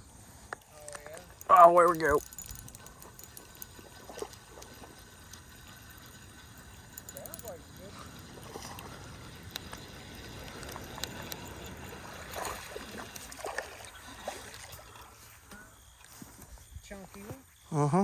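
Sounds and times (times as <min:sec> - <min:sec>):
water splashing lightly: 0:09.6 - 0:15.2.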